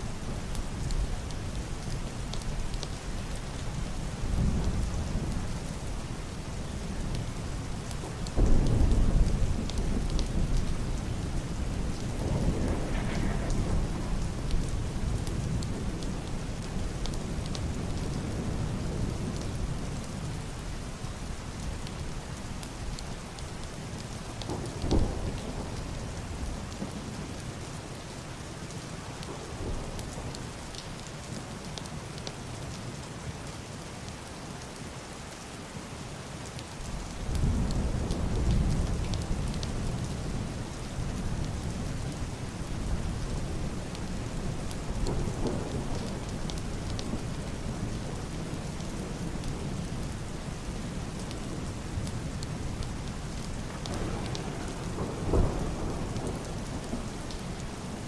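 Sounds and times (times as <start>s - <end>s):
heavy rain on roof and glass: 0.0s - 58.0s
distant thunder: 11.5s - 16.2s, 53.8s - 58.0s.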